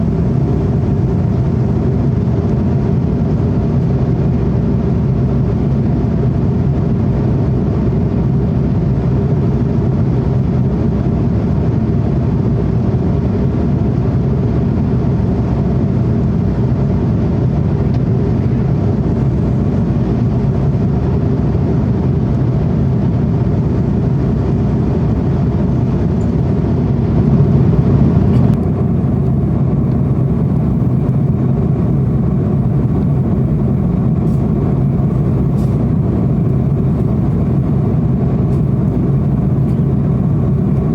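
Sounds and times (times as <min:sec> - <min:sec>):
airliner engine roar in cabin: 0:00.0 - 0:40.9.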